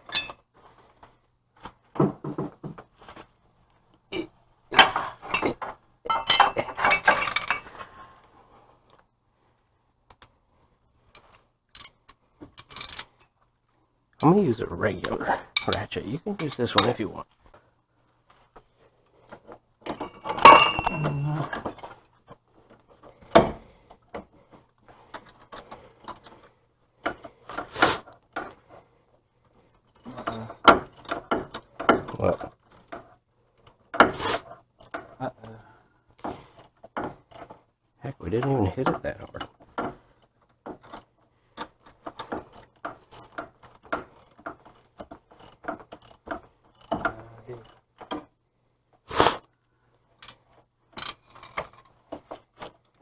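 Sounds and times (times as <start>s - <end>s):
metal hand tools clattering: 0.0s - 0.4s, 4.8s - 7.8s, 19.9s - 21.7s.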